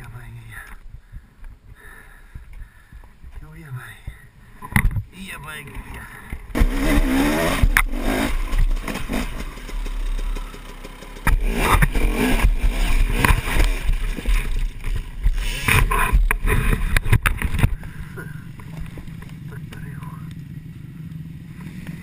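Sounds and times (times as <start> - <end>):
heavy low rumble: 0.0 - 22.0
dirt bike engine revving: 6.5 - 22.0.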